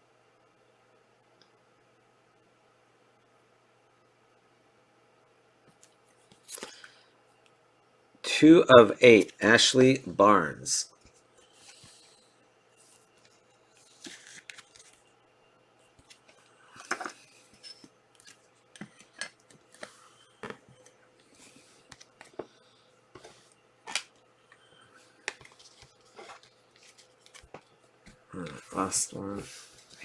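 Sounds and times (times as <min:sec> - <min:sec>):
cards clicking and rustling: 0:13.0 - 0:15.0, 0:23.2 - 0:30.0.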